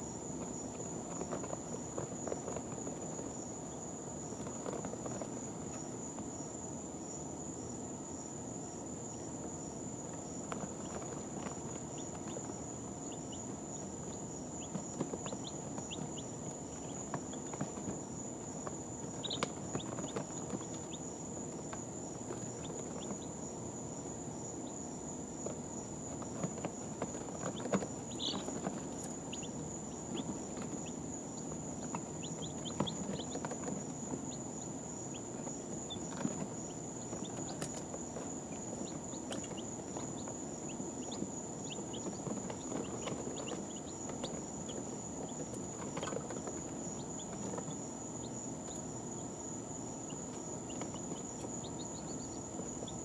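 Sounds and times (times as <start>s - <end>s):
chicks peeping: 0.0s - 53.0s
chicks shuffling in bedding: 0.0s - 53.0s.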